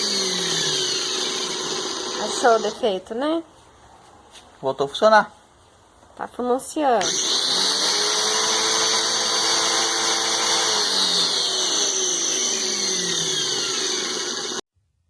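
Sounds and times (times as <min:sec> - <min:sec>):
pressure washer motor whine: 0:00.0 - 0:02.8, 0:07.0 - 0:14.6.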